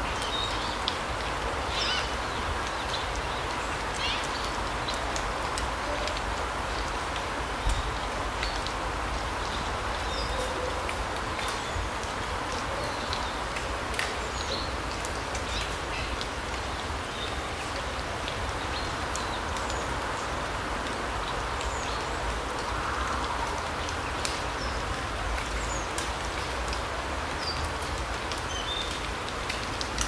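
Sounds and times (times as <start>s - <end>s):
light ticks: 2.6s - 16.6s, 20.8s - 30.0s.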